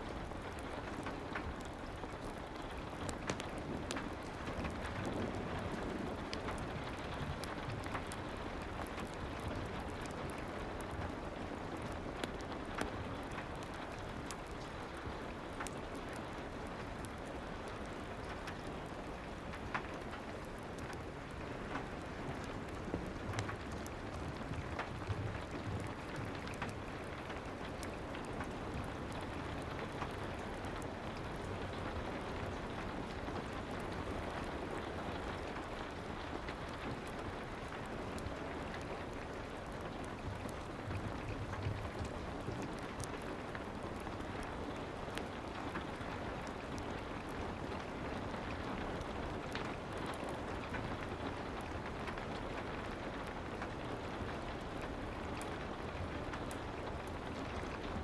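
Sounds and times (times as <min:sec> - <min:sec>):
soft rain falling: 0:00.0 - 0:58.0
fireplace crackling: 0:00.1 - 0:58.0.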